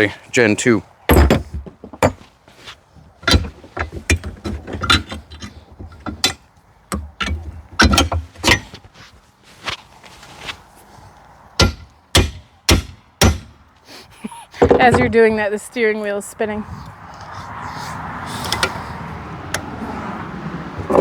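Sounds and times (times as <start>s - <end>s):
metal clicks and knocks: 3.2s - 8.8s.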